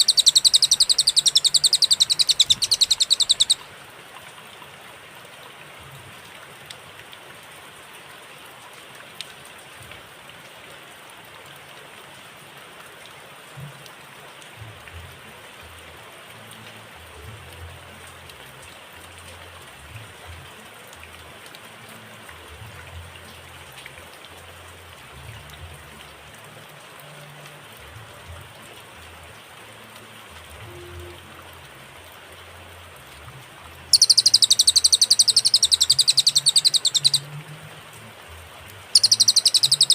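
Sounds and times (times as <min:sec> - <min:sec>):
faint ticks: 0:00.0 - 0:03.6, 0:33.2 - 0:38.1, 0:38.9 - 0:39.9
high-pitched bird song: 0:00.0 - 0:03.6, 0:33.9 - 0:37.3, 0:38.9 - 0:39.9
rain-like background hiss: 0:00.0 - 0:39.9.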